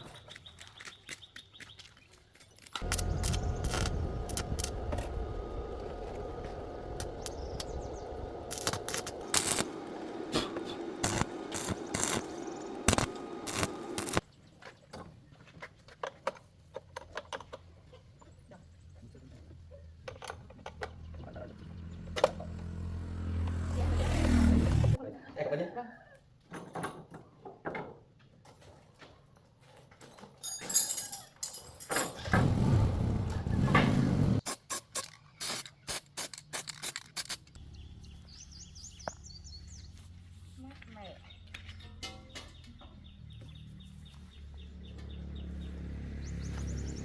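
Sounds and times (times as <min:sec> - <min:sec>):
low hum: 0:02.8 - 0:14.2
machine humming: 0:02.8 - 0:14.2
metallic clicks and rattles: 0:35.0 - 0:37.6.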